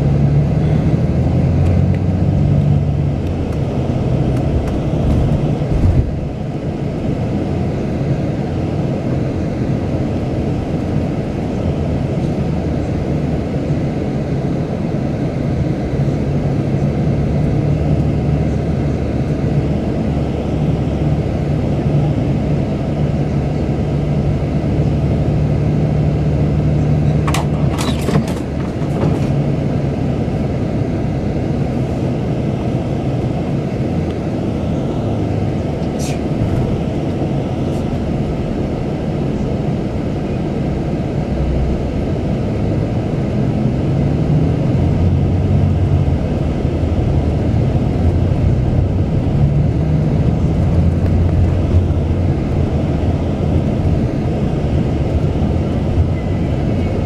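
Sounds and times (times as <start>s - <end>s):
coach engine drone: 0.0s - 57.0s
road noise: 0.0s - 57.0s.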